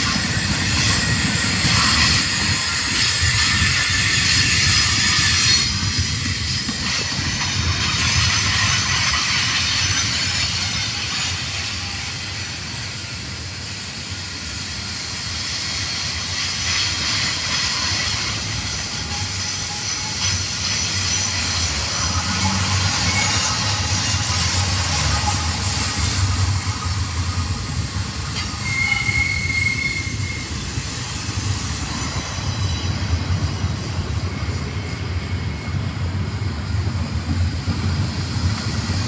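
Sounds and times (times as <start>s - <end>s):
train wheels rumbling and clattering: 0.0s - 39.0s
high-pitched wheel squeal: 15.9s - 26.2s, 28.0s - 36.6s.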